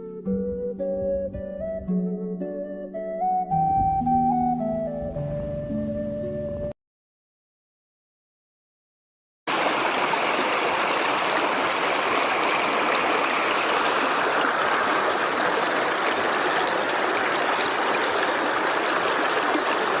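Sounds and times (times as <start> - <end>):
stream water rushing: 9.5 - 20.0.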